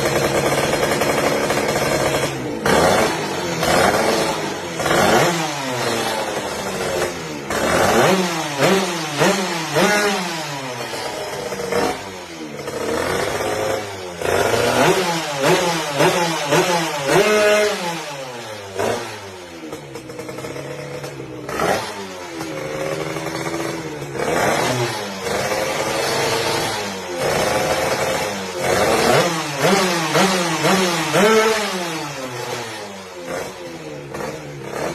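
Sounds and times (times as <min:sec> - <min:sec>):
two-stroke motorcycle engine revving: 0:00.0 - 0:34.9.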